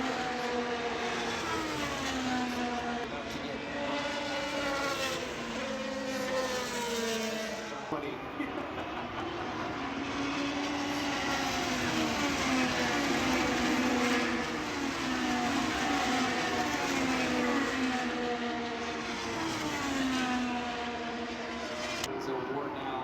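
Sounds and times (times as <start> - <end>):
race car engines passing: 0.0 - 23.0.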